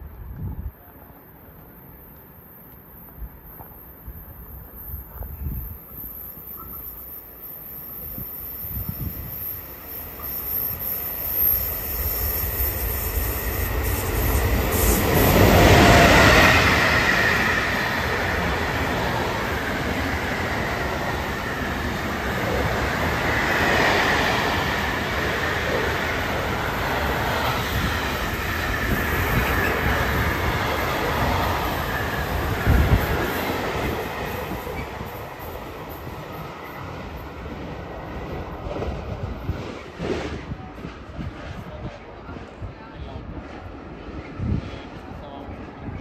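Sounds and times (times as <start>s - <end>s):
freight train wheels on rail: 0.0s - 46.0s.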